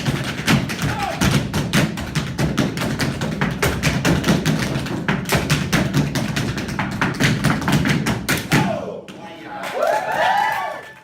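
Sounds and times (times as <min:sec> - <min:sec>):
tap dancing on hard floor: 0:00.0 - 0:08.5.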